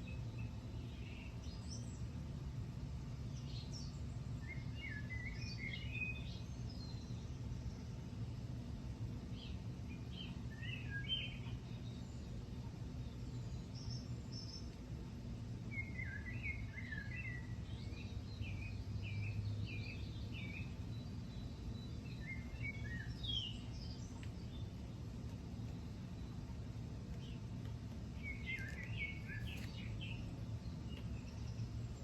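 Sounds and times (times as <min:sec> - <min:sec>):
songbirds chirping and singing: 0:00.0 - 0:02.2, 0:02.8 - 0:32.0
low background rumble: 0:00.0 - 0:32.0.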